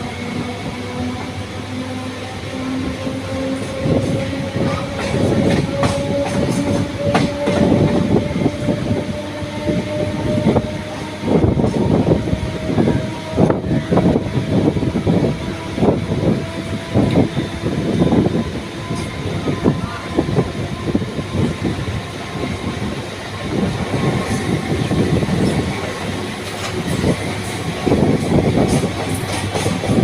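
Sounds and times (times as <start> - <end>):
train wheels clanking over rail joints: 2.6 - 11.9, 21.4 - 30.0.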